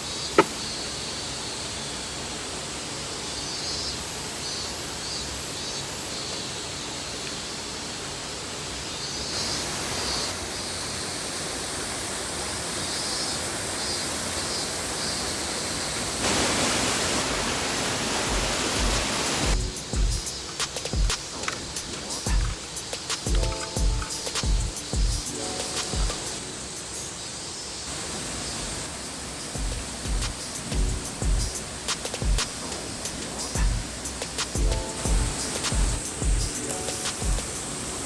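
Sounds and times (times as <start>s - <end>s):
waterfall rushing: 15.0s - 38.0s
faint high chirping: 19.5s - 38.0s.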